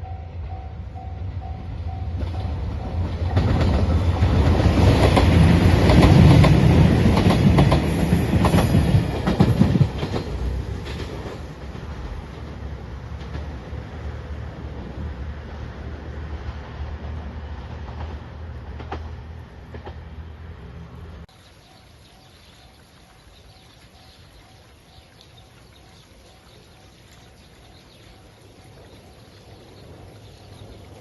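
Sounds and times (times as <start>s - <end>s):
train rumbling past: 0.0s - 31.0s
train wheels clicking: 2.2s - 14.0s, 16.4s - 20.5s.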